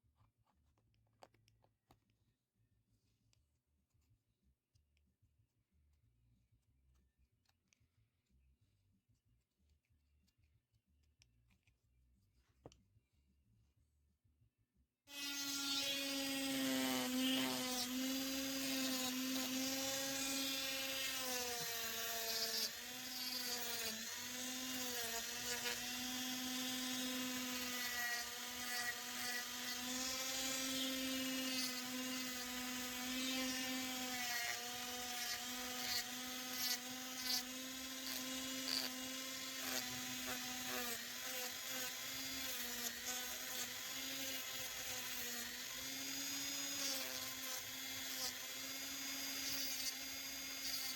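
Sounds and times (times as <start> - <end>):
power tool whining on wood: 15.1 - 50.9.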